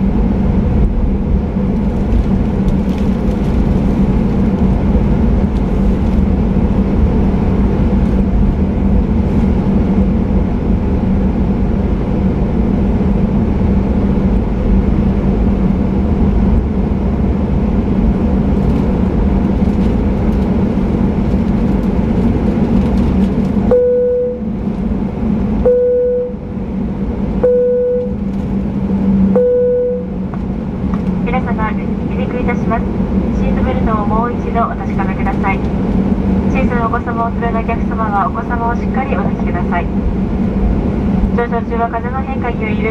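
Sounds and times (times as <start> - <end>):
jet engines rumbling in cabin: 0.0 - 42.9
repeating mid-pitched tone: 23.7 - 24.5, 25.7 - 26.5, 27.4 - 28.2, 29.3 - 30.2.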